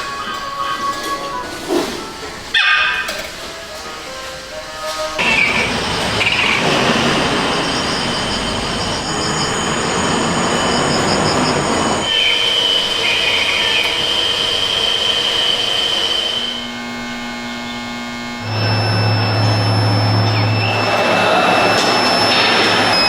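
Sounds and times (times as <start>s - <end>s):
harsh machine noise: 4.6s - 23.0s
high-pitched machine squeal: 4.9s - 23.0s.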